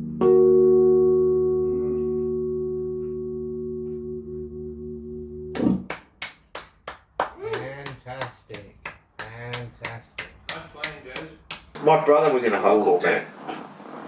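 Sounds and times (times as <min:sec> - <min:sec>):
guitar chord ringing: 0:00.0 - 0:05.6
hand claps: 0:05.6 - 0:11.8.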